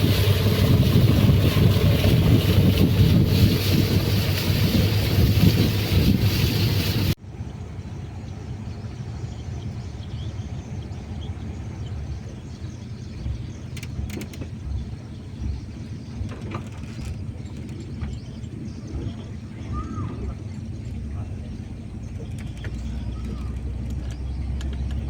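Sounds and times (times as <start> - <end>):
vehicle engine rumbling: 0.0 - 25.0
faint clicks and knocks: 13.2 - 18.2, 22.1 - 25.0.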